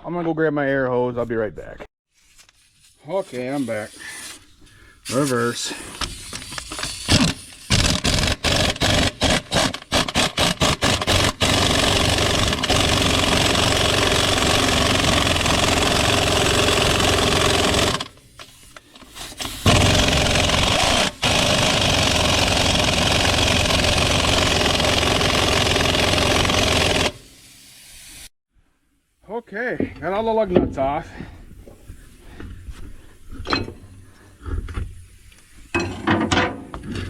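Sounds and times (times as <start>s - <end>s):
pneumatic impact wrench: 5.9s - 28.3s.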